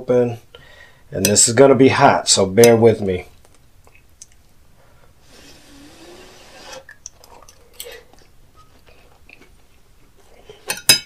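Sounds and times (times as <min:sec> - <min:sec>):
breathy hiss: 0:00.5 - 0:01.1, 0:04.8 - 0:06.9
person chewing: 0:06.8 - 0:10.7
fork and knife clattering on plate: 0:10.6 - 0:11.0.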